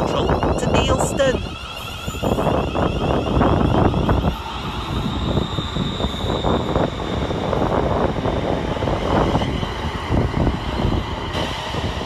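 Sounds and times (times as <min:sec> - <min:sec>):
high whine: 0:00.0 - 0:12.0
train wheels rumbling over track: 0:00.0 - 0:12.0.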